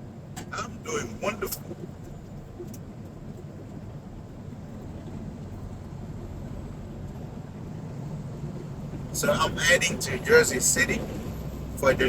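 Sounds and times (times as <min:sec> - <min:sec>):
diesel engine drone: 0:00.0 - 0:12.0
road noise: 0:00.0 - 0:12.0.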